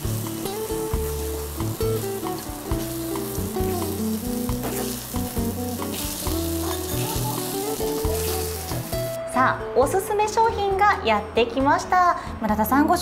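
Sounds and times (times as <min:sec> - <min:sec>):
food sizzling in a pan: 0:00.0 - 0:09.2
background music with bass: 0:00.0 - 0:10.0.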